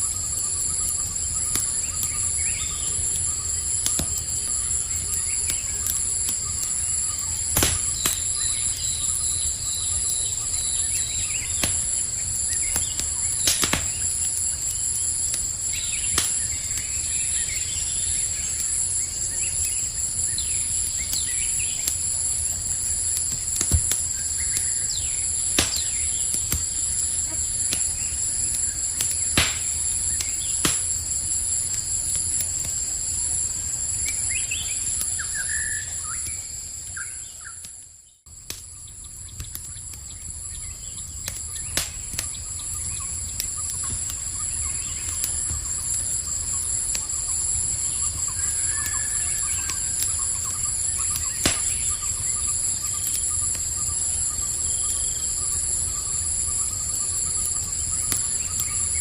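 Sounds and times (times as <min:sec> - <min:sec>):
campfire crackling: 0:00.0 - 0:59.0
night insects trilling: 0:00.0 - 0:59.0
bird chirps: 0:34.0 - 0:37.6, 0:47.9 - 0:57.0.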